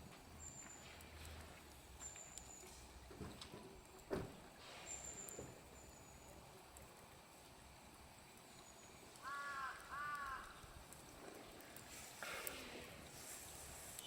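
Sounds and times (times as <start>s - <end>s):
faint outdoor background: 0.0s - 14.0s
bird cawing: 9.2s - 10.7s.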